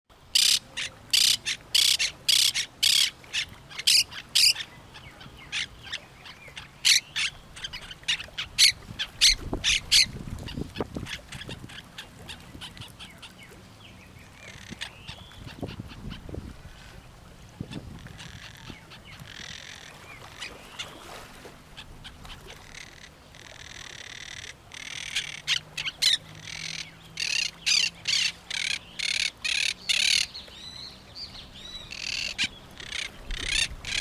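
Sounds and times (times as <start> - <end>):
parrots squawking: 0.4 - 4.6, 6.8 - 10.1, 22.6 - 30.3, 31.9 - 34.0.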